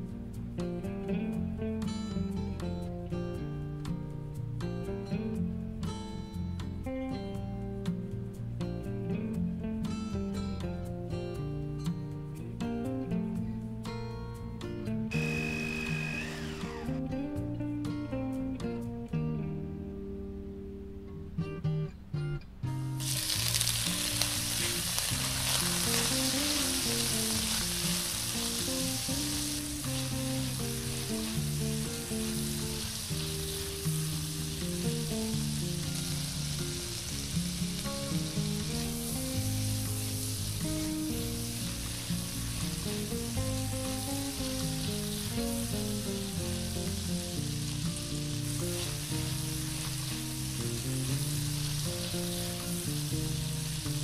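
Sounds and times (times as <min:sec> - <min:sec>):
paste sizzling in hot oil: 0:15.1 - 0:17.0, 0:23.0 - 0:54.0.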